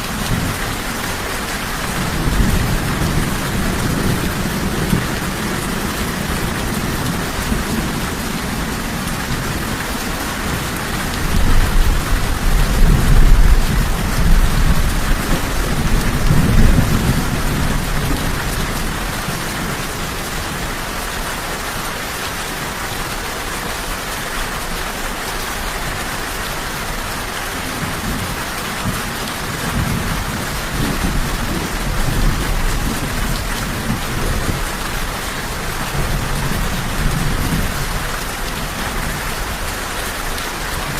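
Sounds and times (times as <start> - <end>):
heavy rain: 0.0 - 40.9
rolling thunder: 10.4 - 19.4.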